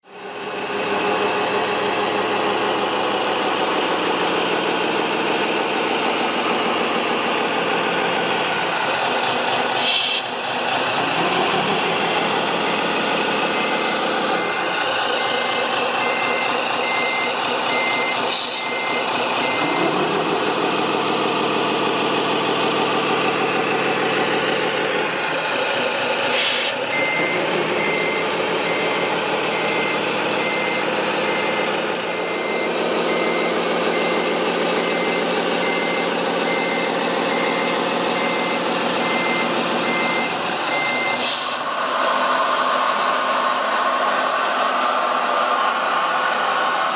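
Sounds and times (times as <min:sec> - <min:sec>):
heavy engine running: 0:00.0 - 0:46.9
short air hisses: 0:09.8 - 0:10.3, 0:26.3 - 0:26.8, 0:41.2 - 0:41.7
reversing alarm beeping: 0:11.0 - 0:25.4, 0:26.4 - 0:41.6.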